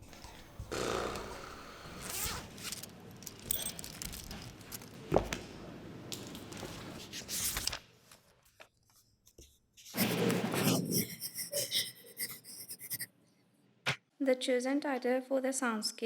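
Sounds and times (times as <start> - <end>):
rustling and crinkling: 2.0 - 5.6.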